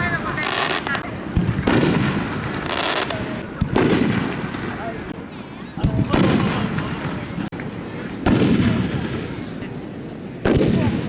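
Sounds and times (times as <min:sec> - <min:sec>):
firework shells booming: 0:00.0 - 0:05.2, 0:05.8 - 0:07.5, 0:08.2 - 0:09.5, 0:10.4 - 0:11.0.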